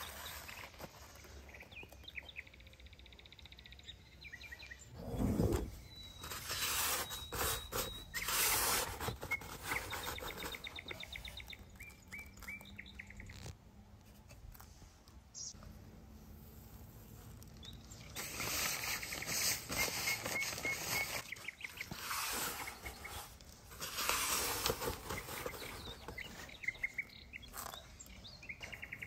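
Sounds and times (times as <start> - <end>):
small birds chirping: 0.0 - 13.6, 14.6 - 15.7, 16.5 - 29.0
rough scraping or rustling: 5.0 - 10.7, 16.5 - 26.5.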